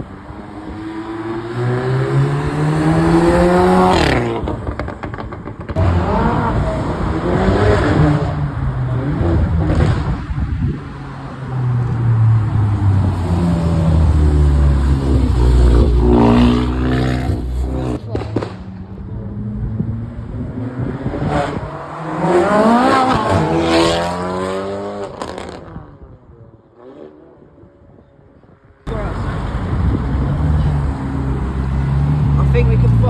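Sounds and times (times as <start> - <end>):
car engines revving: 0.0 - 28.2, 28.8 - 33.0
exhaust crackling: 11.8 - 19.9.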